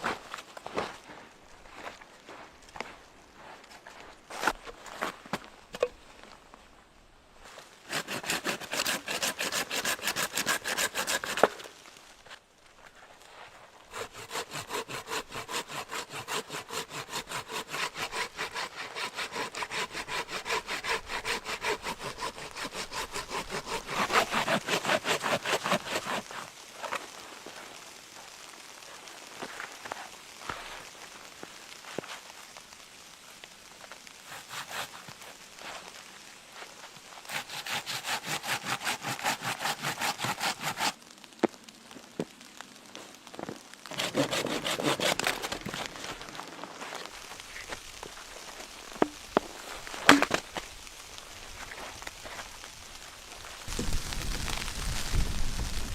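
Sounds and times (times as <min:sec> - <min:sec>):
hand saw cutting wood: 0:07.9 - 0:11.7, 0:13.9 - 0:27.0, 0:34.3 - 0:35.2, 0:37.3 - 0:41.0, 0:43.9 - 0:47.1, 0:50.1 - 0:50.4
knocks and scraping: 0:48.9 - 0:50.7.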